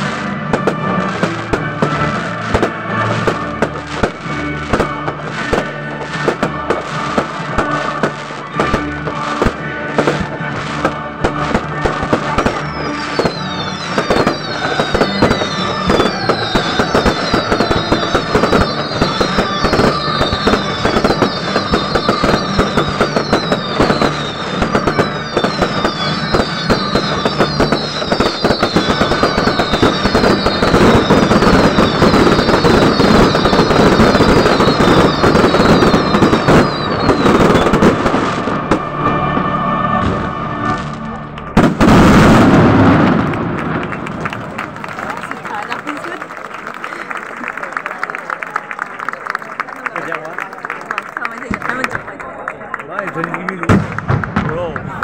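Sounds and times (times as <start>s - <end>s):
fireworks crackling: 0.0s - 55.0s
falling firework whistles: 11.2s - 38.8s, 41.6s - 43.4s.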